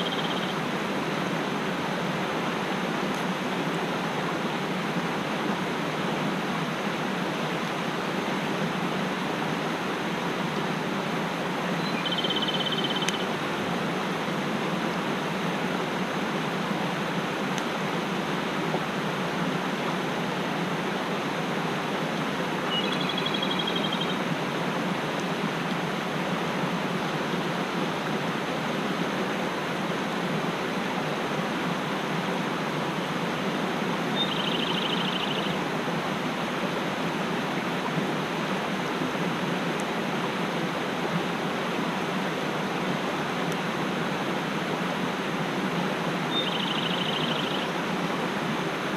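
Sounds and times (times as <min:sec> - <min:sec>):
bird trilling: 0:00.0 - 0:00.5, 0:11.8 - 0:13.2, 0:22.7 - 0:24.2, 0:34.2 - 0:35.6, 0:46.3 - 0:47.7
mountain stream rushing: 0:00.0 - 0:48.9.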